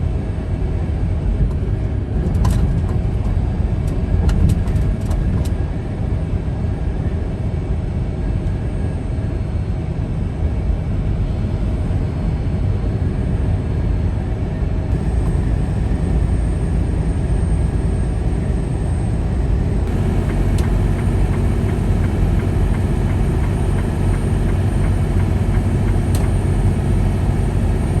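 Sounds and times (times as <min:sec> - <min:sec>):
vehicle road noise rumble: 0:14.9 - 0:28.0
strong wind: 0:19.7 - 0:28.0.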